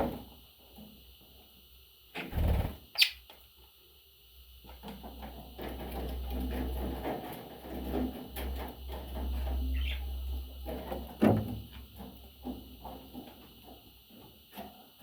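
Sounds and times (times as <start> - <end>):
parrots clicking and scratching: 4.7 - 13.9.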